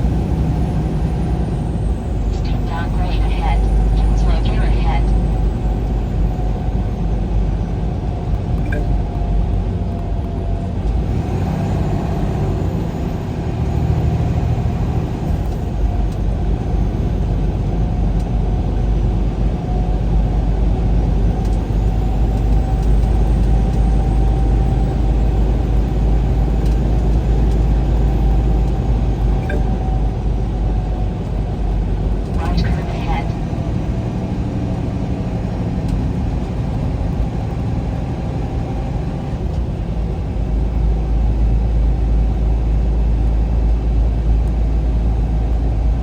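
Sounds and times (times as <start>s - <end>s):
vehicle engine and road rumble: 0.0s - 46.0s.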